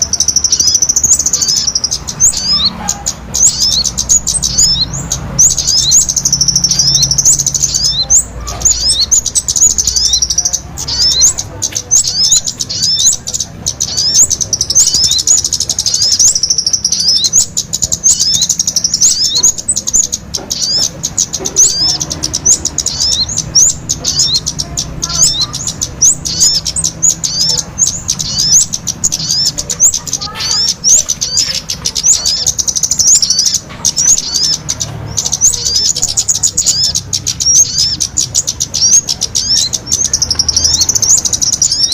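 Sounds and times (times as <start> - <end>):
songbirds twittering: 0.0 - 41.9.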